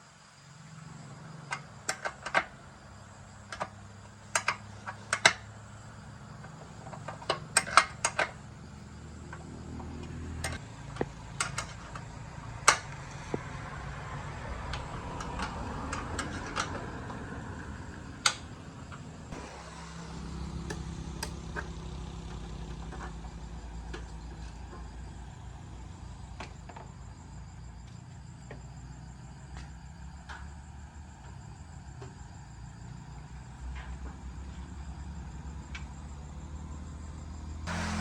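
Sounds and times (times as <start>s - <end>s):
sharp clicks and light knocks: 1.4s - 2.7s, 3.4s - 5.5s, 6.4s - 13.5s.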